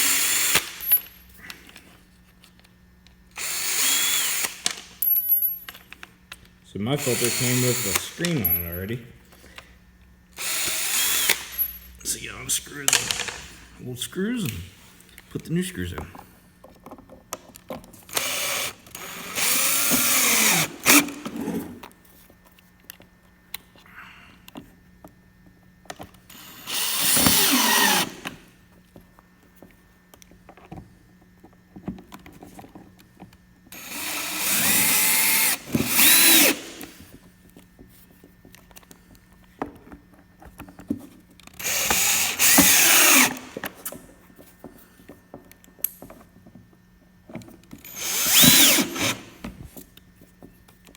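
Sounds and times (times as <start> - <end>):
power drill driving screws: 0.0 - 1.0, 3.4 - 5.0, 6.9 - 8.5, 10.4 - 11.8, 12.7 - 13.6, 18.1 - 21.9, 26.3 - 28.5, 33.8 - 37.0, 41.6 - 43.8, 47.8 - 49.4.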